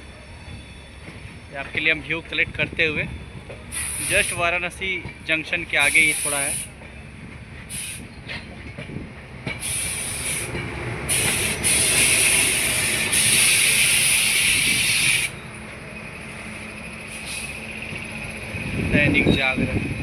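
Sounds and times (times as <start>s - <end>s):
train rolling rumble: 0.0s - 20.0s
rushing hiss: 3.7s - 4.5s, 5.8s - 6.8s, 7.7s - 8.1s, 9.6s - 15.4s, 16.2s - 17.8s.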